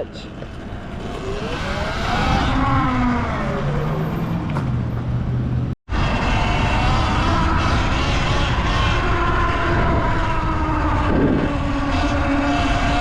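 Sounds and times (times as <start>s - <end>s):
electric dirt bike motor whine: 5.9s - 13.0s
wind noise on microphone: 5.9s - 13.0s.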